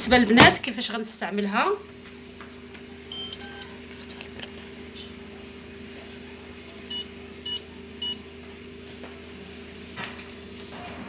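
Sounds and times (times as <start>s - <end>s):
dishwasher control panel beeps: 3.1s - 3.7s, 6.9s - 8.2s.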